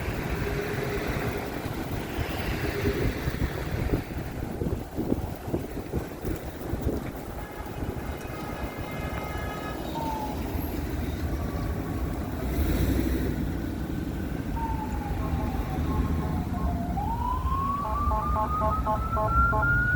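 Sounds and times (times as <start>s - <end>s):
traffic engines rumbling: 0.0s - 19.9s
siren wailing: 14.6s - 19.9s
car horn: 17.8s - 19.9s.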